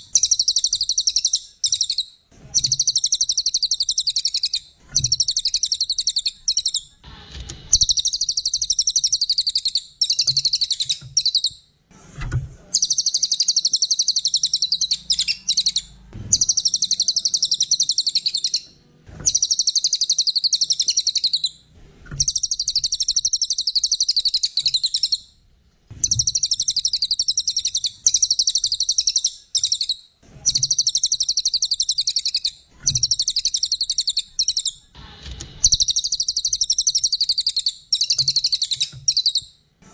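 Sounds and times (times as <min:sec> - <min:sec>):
songbird trilling chatter: 0:12.8 - 0:18.6.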